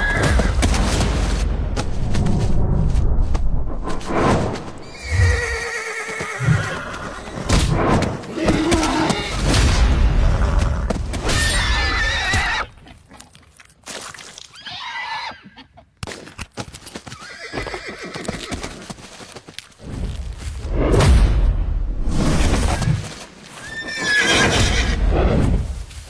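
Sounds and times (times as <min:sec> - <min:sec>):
horses squealing and screaming: 0:00.0 - 0:00.7, 0:04.8 - 0:09.6, 0:10.4 - 0:13.1, 0:14.4 - 0:15.9, 0:16.9 - 0:19.4, 0:22.5 - 0:25.2
dull thuds of hooves and bodies: 0:00.0 - 0:03.5, 0:06.1 - 0:11.4, 0:16.0 - 0:20.7.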